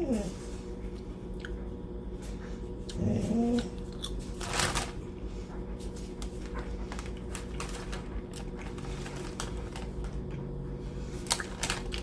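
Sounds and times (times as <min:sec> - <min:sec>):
steady low hum: 0:00.0 - 0:12.0
chewing crunchy potato chips: 0:02.8 - 0:05.0, 0:06.2 - 0:12.0.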